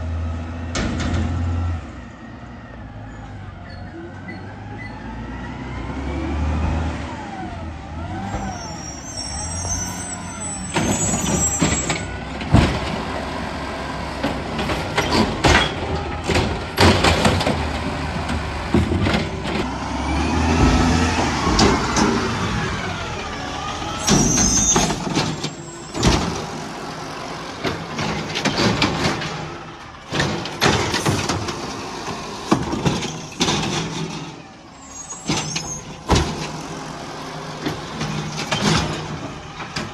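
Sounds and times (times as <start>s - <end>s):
diesel engine revving: 0.0s - 39.9s
bangs and clatter: 0.7s - 1.6s, 8.2s - 19.7s, 20.4s - 39.9s
high squeals: 8.1s - 12.3s, 20.7s - 28.1s, 34.7s - 36.5s.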